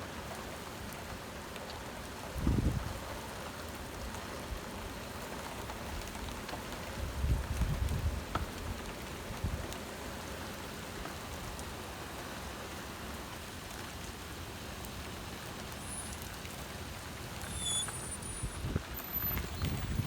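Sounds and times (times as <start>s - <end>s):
heavy rain pouring: 0.1s - 20.0s.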